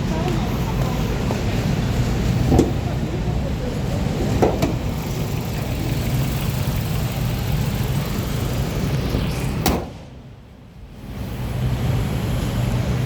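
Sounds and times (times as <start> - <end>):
low rumble: 1.9 - 11.5.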